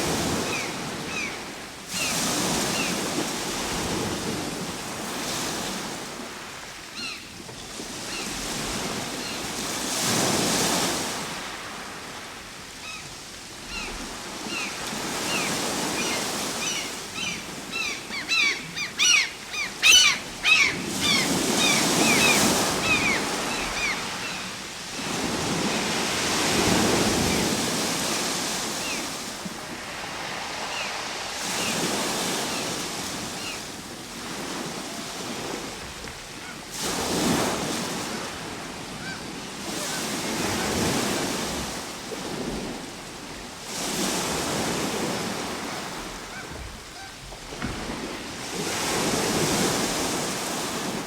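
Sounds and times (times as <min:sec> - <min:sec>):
ocean waves breaking on shore: 0:00.0 - 0:51.0
bird calls chirping: 0:14.5 - 0:24.5.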